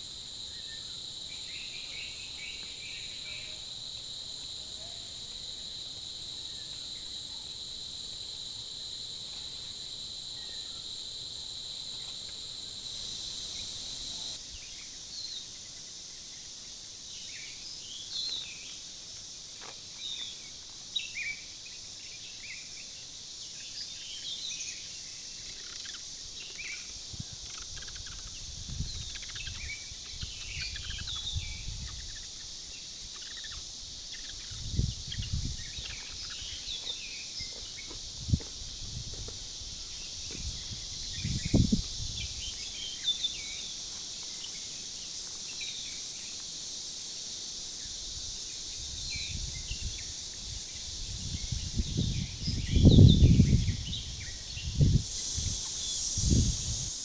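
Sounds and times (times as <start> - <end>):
high insect drone: 0.0 - 14.4, 25.5 - 57.0
faint hiss: 0.0 - 15.3, 26.7 - 57.0
wind rumbling on microphone: 28.3 - 29.6, 34.5 - 36.0, 38.0 - 42.5, 51.0 - 55.6, 56.2 - 56.9.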